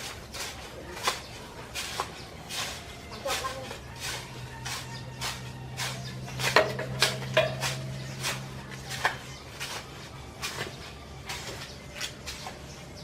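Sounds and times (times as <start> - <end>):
hard objects clinking and knocking: 4.8 - 9.2.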